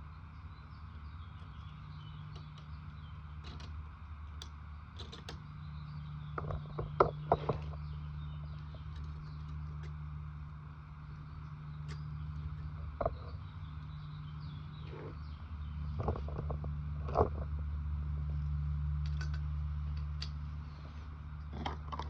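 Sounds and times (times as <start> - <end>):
steady low hum: 0.0 - 22.0
tools and parts clicking: 3.4 - 5.4, 19.0 - 20.4.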